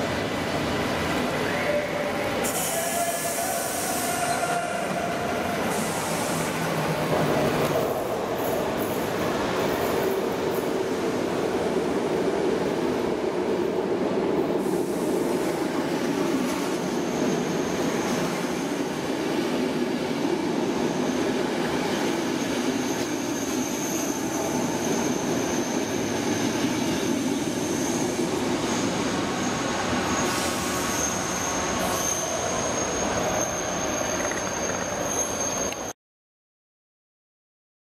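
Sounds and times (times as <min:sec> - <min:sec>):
train wheels rumbling on rail: 0:00.0 - 0:35.9
high-pitched squeal: 0:22.4 - 0:36.0.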